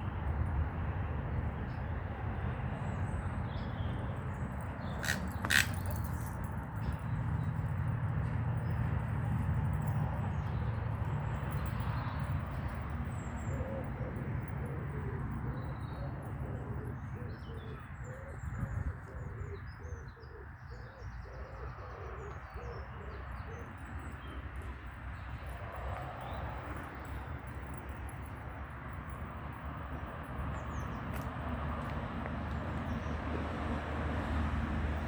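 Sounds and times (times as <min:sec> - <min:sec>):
pigeon cooing: 0:13.5 - 0:23.6.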